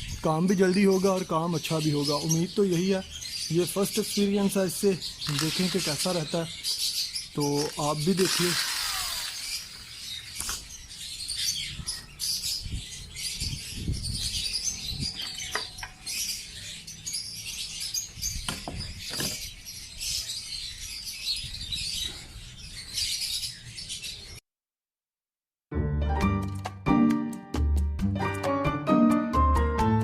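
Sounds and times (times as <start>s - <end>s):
lovebirds chattering and chirping: 0.0s - 24.4s
handling thumps and knocks: 18.4s - 19.5s.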